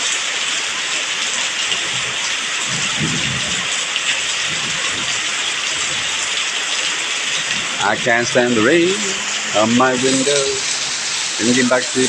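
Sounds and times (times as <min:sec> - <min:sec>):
heavy rain pouring: 0:00.0 - 0:12.0
thunder rumble: 0:02.0 - 0:06.4, 0:07.3 - 0:11.9.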